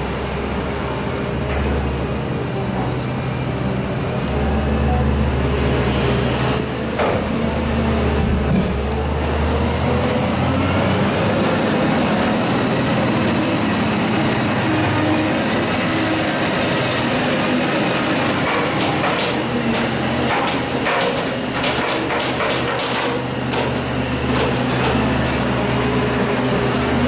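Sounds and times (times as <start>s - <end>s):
heavy farm machinery running: 0.0s - 27.0s
clattering rattle of knocks: 18.4s - 25.0s.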